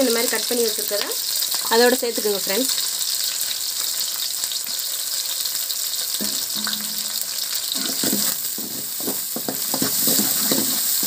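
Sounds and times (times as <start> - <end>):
food sizzling in hot oil: 0.0 - 11.0
metal ladle scraping a pan: 6.2 - 11.0.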